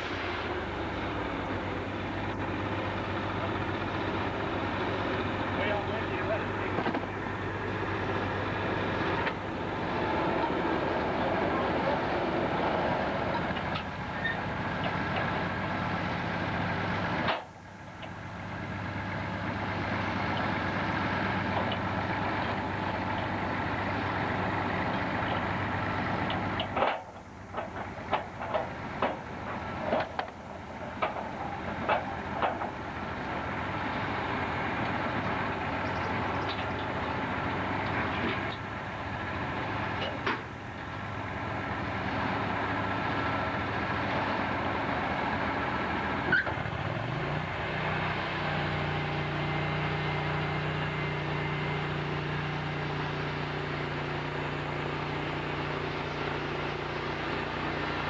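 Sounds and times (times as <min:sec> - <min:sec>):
sawmill machinery running: 0:00.0 - 0:58.0
sharp knocks and clatter: 0:26.3 - 0:32.8.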